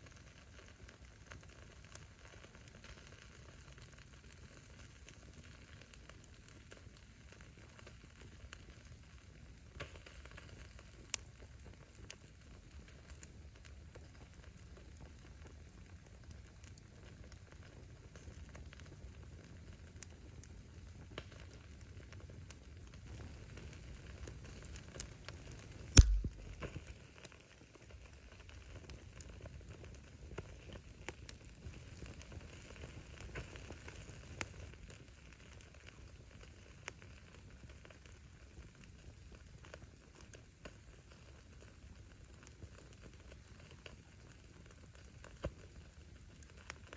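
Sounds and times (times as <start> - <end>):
bonfire crackling: 0.0 - 46.9
low rumble of flames: 0.0 - 46.9
sharp fire pops: 23.0 - 27.3
loud pop with thud: 26.0 - 26.5.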